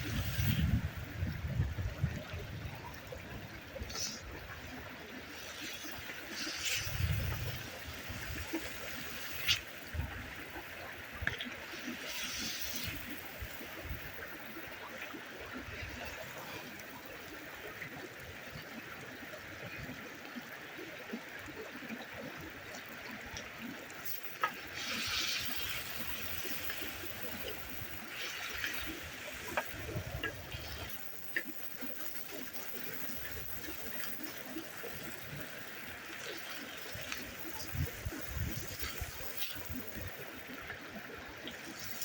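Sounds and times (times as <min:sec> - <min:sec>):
water trickling: 0:00.0 - 0:42.0.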